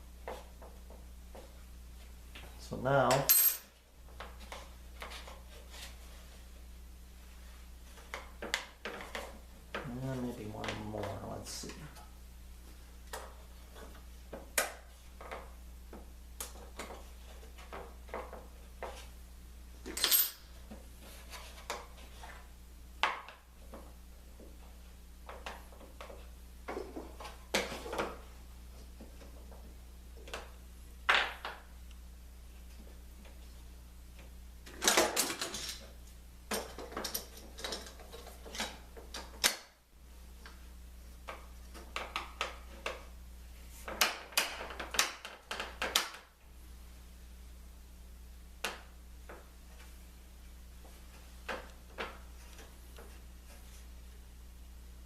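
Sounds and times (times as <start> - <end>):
steady low hum: 0.0 - 43.9
hand tools clinking: 19.9 - 20.5.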